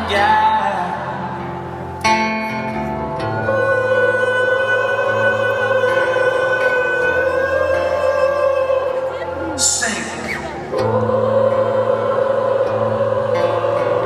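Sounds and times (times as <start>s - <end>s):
guitar: 0.0s - 14.0s.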